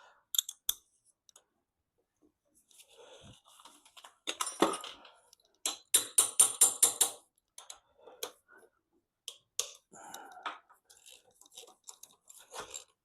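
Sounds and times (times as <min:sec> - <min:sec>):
hand tools clicking on metal: 0:00.3 - 0:00.8, 0:05.5 - 0:08.4.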